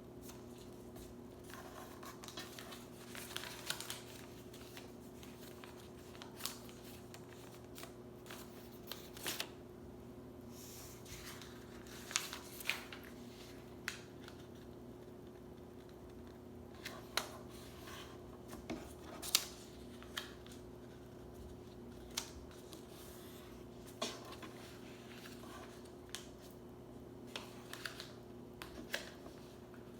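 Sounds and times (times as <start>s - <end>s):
faint steady hum: 0.0s - 29.9s
paper crackling and creasing: 0.2s - 9.5s, 10.6s - 15.9s, 16.7s - 26.6s, 27.3s - 29.9s.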